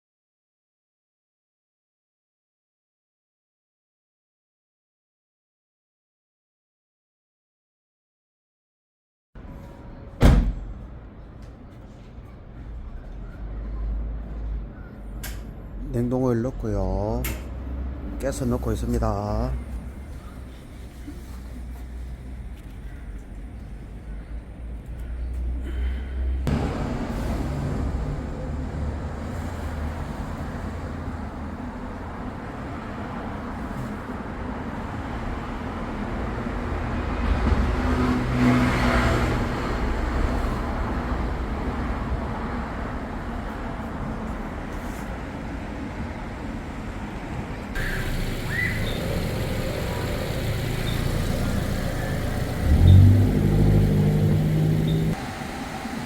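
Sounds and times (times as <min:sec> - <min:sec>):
car engine running: 0:47.8 - 0:55.5
refrigerant gas hissing: 0:47.8 - 0:56.0.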